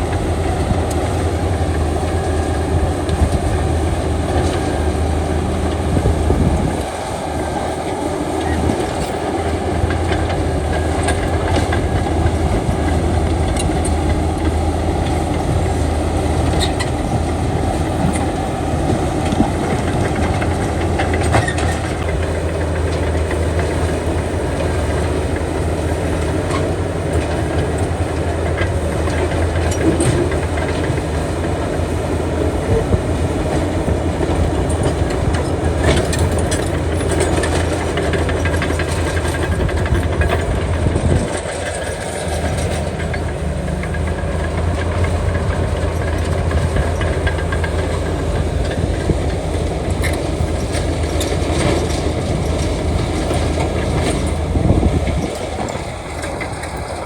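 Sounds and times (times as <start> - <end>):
heavy diesel machinery droning: 0.0 - 57.0
metal clanks and knocks: 32.6 - 57.0.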